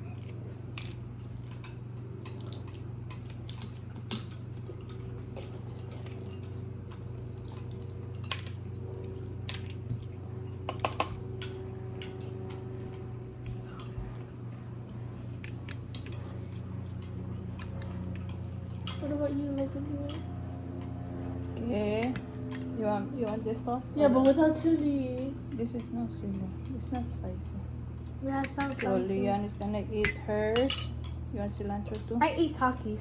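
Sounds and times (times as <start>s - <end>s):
steady low hum: 0.0s - 33.0s
spoons and dishes clinking: 0.2s - 14.2s, 30.0s - 31.2s.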